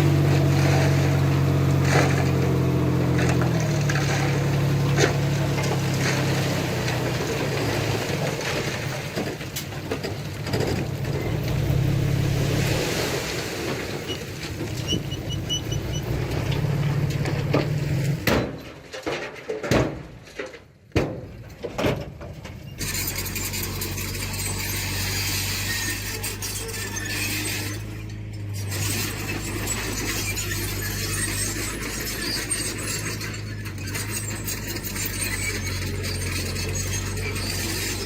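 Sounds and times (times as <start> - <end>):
diesel engine running under load: 0.0 - 18.4, 22.8 - 38.0
engine knocks and clatter: 0.0 - 38.0
short high squeaks: 14.0 - 16.4, 22.7 - 38.0.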